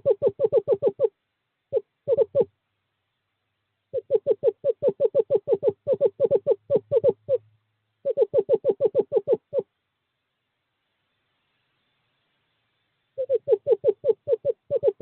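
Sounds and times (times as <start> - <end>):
owl hooting: 0.0 - 1.1, 1.7 - 2.5, 3.9 - 9.7, 13.2 - 15.0.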